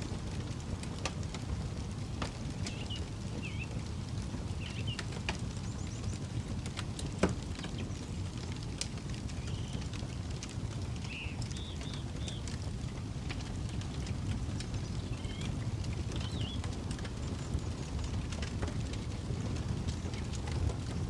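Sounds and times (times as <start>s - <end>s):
campfire crackling and popping: 0.0s - 21.0s
birds chirping: 2.6s - 3.8s, 4.6s - 6.2s, 11.0s - 12.6s, 14.7s - 17.7s.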